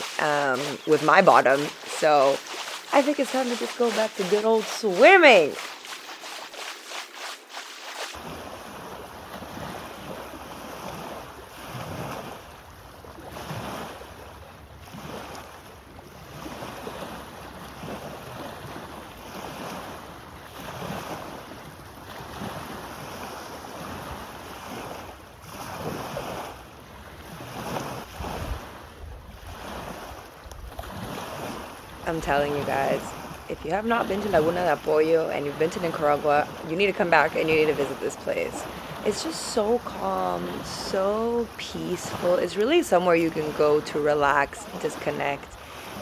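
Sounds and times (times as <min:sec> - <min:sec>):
water sloshing and splashing: 0:00.0 - 0:12.4, 0:29.4 - 0:46.0.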